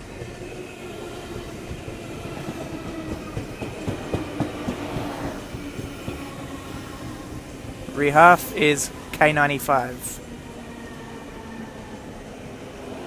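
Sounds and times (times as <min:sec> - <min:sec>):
electric train whine: 0:00.0 - 0:13.0.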